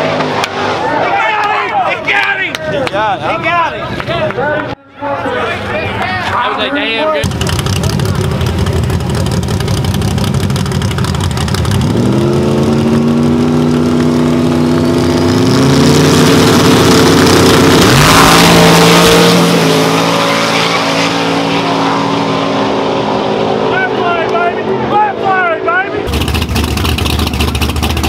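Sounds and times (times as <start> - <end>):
drag car engine revving: 7.2 - 28.0.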